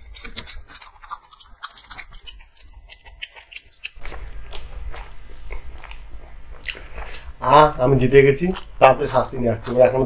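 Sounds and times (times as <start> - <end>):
chewing crunchy fried chicken: 0.0 - 7.3.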